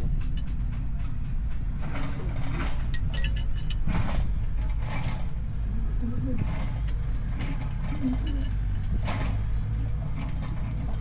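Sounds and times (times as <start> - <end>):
diesel engine rumbling: 0.0 - 11.0
metal clinks and scrapes: 1.8 - 5.5, 6.4 - 11.0.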